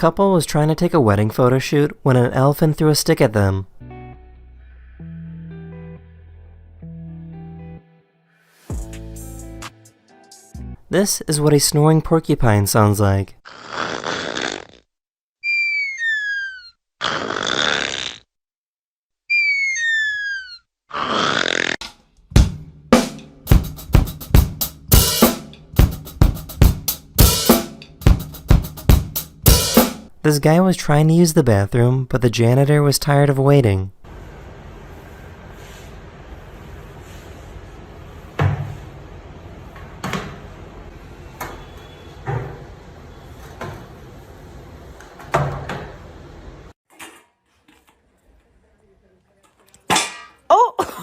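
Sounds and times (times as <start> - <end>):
drum kit playing a beat: 8.7 - 10.8, 22.3 - 30.1
room hum: 33.9 - 46.8.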